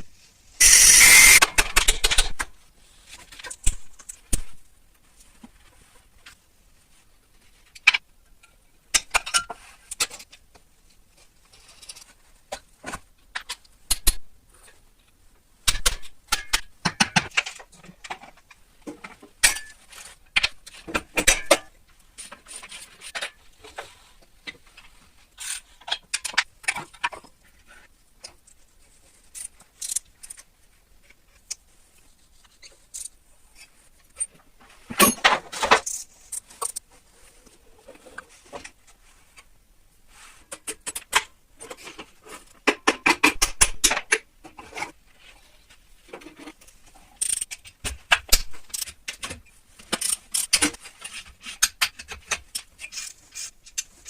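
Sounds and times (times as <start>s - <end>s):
metal scraping: 0.6s - 1.4s
metal parts and tools clinking: 0.6s - 2.4s, 47.1s - 54.0s.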